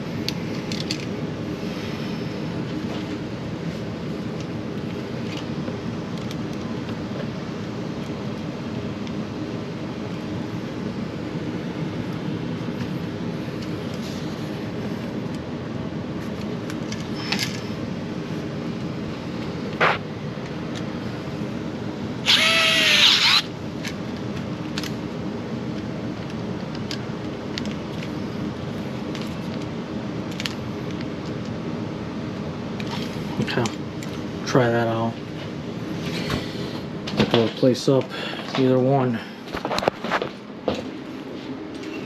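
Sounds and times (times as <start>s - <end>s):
steady low hum: 0.0s - 42.0s
power drill whine: 22.2s - 23.5s.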